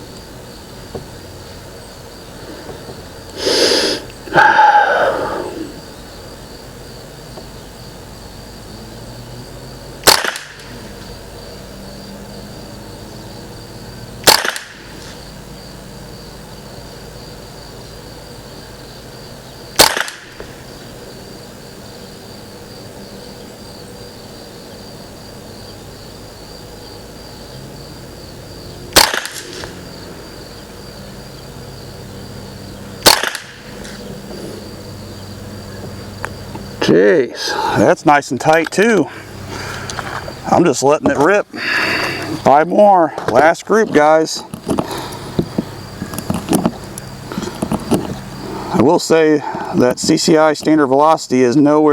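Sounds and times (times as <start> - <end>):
insects trilling: 0.0 - 51.9
rifle shots: 10.0 - 10.8, 14.2 - 15.1, 19.8 - 20.4, 28.9 - 29.7, 33.0 - 33.7.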